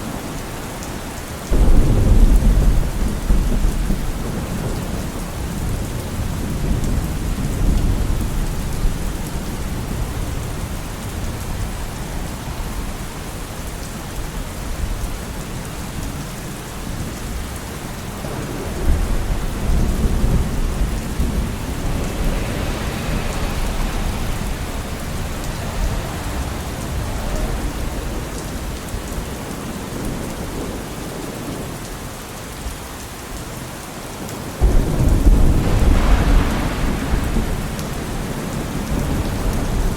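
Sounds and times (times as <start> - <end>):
steady rain: 0.0 - 39.9
traffic hiss: 18.5 - 28.9, 34.6 - 39.9
low rumbles: 18.6 - 29.3, 34.6 - 39.9.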